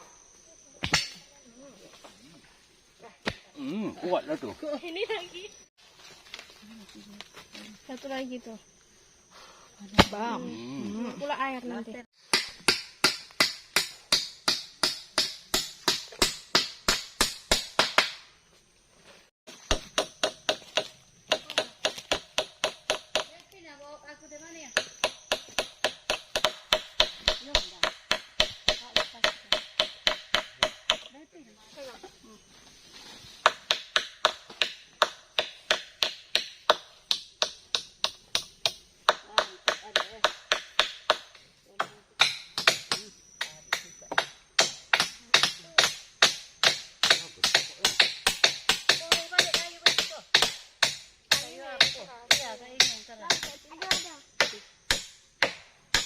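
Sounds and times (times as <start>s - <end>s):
hammering on wood: 12.3s - 18.2s, 19.7s - 23.3s, 24.8s - 31.1s, 33.4s - 56.0s.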